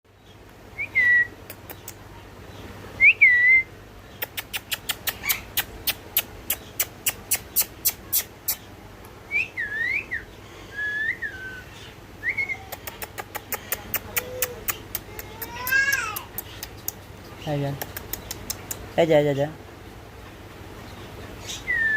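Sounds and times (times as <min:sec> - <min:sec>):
parrot chick whistled calls: 0:21.4 - 0:21.9.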